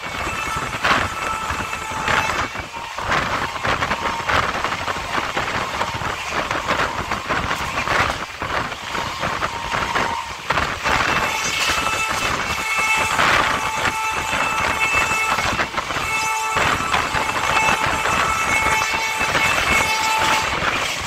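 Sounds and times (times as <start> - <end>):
high wheel squeal: 0.0 - 21.0
train coach clattering and rattling: 0.0 - 21.0.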